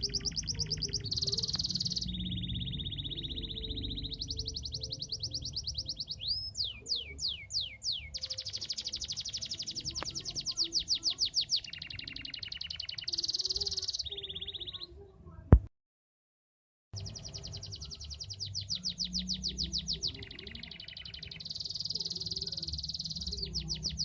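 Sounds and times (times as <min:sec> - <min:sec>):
canary singing trills: 0:00.0 - 0:15.1, 0:17.0 - 0:24.0.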